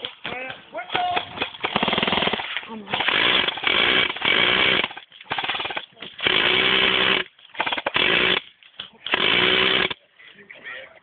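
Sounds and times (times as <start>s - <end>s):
airsoft minigun firing bursts: 1.2s - 8.5s, 9.1s - 10.0s.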